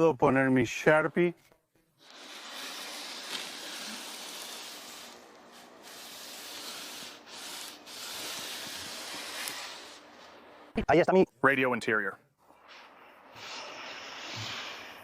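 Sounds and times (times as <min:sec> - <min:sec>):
marker scraping foam board: 0:02.0 - 0:10.4, 0:12.5 - 0:15.0.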